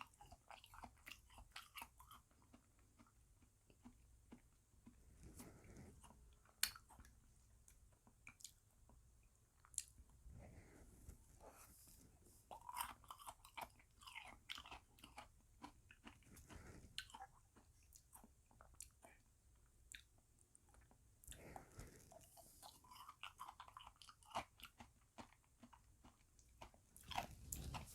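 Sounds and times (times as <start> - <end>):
chewing ice cream with crunches: 0.0 - 10.8, 12.4 - 27.9.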